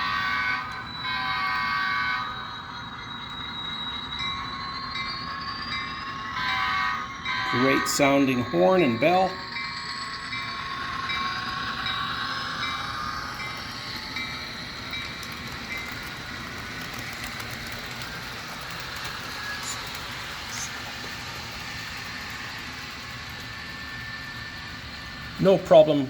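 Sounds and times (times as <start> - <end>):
model train diesel engine sound: 0.0 - 26.0
simulated locomotive bell: 0.0 - 26.0.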